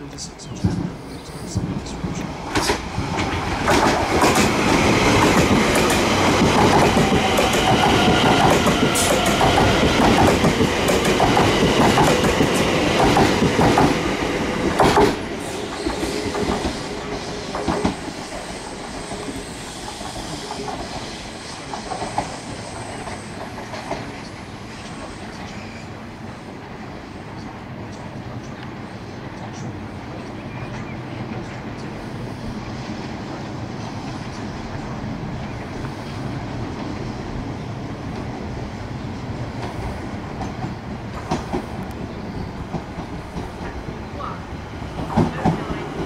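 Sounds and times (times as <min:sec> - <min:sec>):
train wheels clattering over joints: 0:01.6 - 0:24.2.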